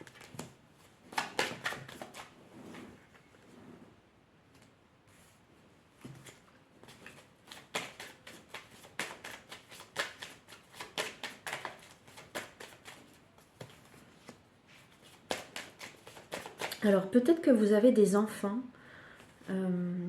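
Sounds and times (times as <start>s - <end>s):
cards being shuffled: 0.0s - 0.5s, 1.1s - 2.4s, 6.0s - 16.8s.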